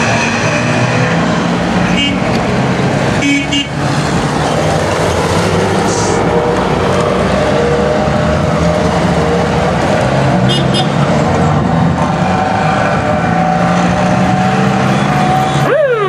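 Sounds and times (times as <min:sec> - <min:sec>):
two-stroke car engines passing: 0:00.0 - 0:15.8
car horn toot: 0:01.9 - 0:02.3, 0:03.2 - 0:03.8, 0:10.5 - 0:11.0.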